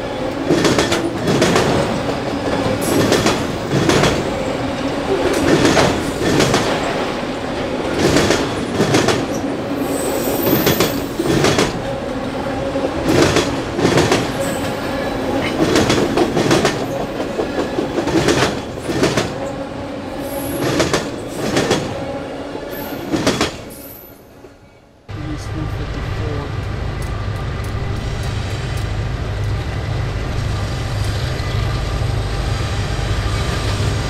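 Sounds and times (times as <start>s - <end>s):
train wheels clicking over rail joints: 0.3s - 4.3s, 5.1s - 7.0s, 15.4s - 19.4s.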